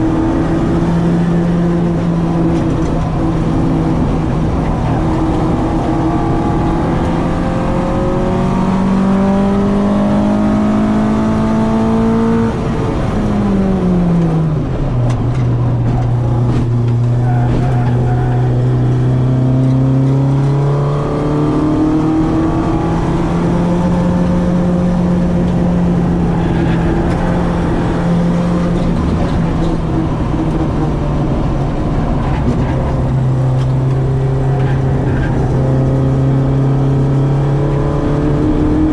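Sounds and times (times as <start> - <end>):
car engine revving under load: 0.0 - 38.9.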